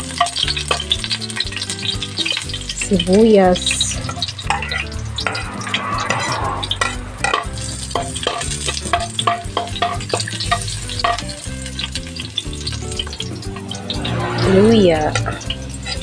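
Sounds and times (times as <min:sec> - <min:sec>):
onion sizzling in oil: 0:00.0 - 0:14.4, 0:15.1 - 0:16.0
metal spatula scraping a wok: 0:03.7 - 0:11.2.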